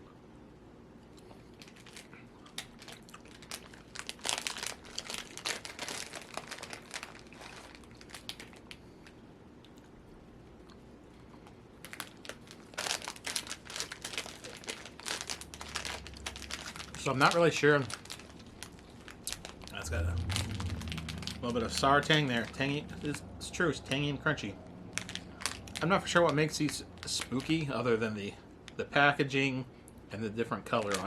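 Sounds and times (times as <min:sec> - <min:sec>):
plastic pouch crinkling: 0:01.5 - 0:09.2, 0:11.8 - 0:28.0, 0:30.6 - 0:31.0.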